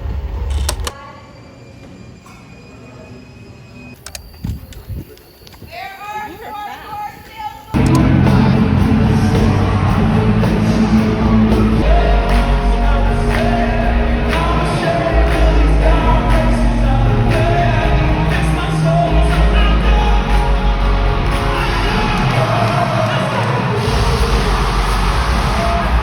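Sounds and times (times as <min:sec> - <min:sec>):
crowd shouting and whooping: 0:07.7 - 0:26.0
live rock music with singing: 0:07.8 - 0:26.0.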